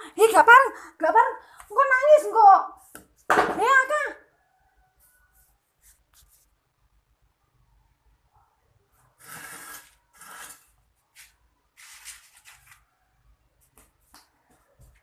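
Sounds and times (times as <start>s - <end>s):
rustling rubbing noises: 5.0s - 6.6s.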